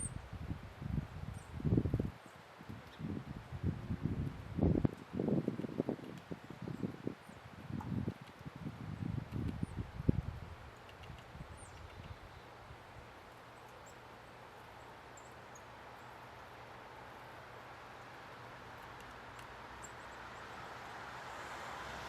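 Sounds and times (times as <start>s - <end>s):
small birds chirping: 10.7s - 21.0s.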